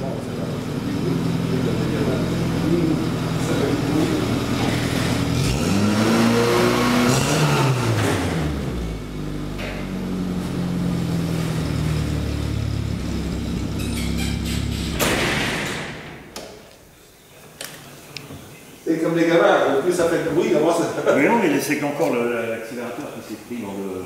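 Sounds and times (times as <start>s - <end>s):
car engine hunting idle: 0.0s - 5.6s, 8.0s - 15.0s.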